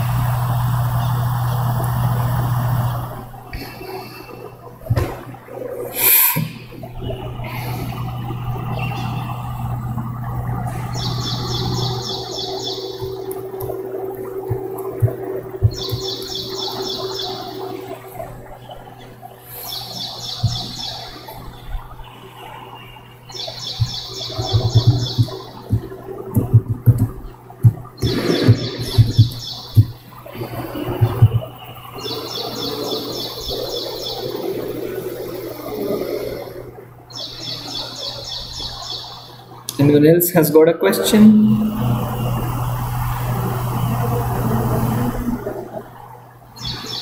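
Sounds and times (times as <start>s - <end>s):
steady low hum: 0.0s - 47.0s
bird high pulsed trill: 7.1s - 25.8s, 30.6s - 36.4s, 37.1s - 39.5s, 41.0s - 45.2s.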